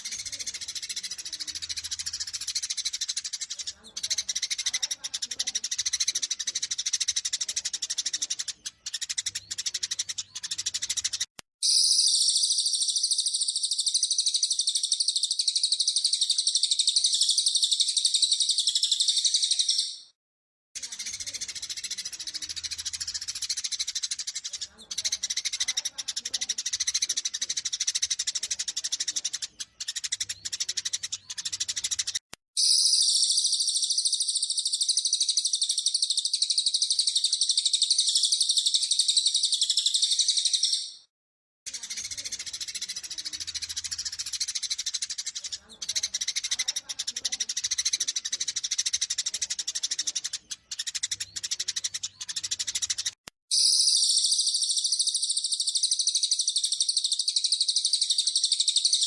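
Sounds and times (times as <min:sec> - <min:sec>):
high-pitched bird trill: 0:00.0 - 0:20.2, 0:32.6 - 0:41.1, 0:47.5 - 0:59.0
sparrows chirping: 0:00.0 - 0:20.2, 0:20.8 - 0:41.1, 0:41.7 - 0:59.0.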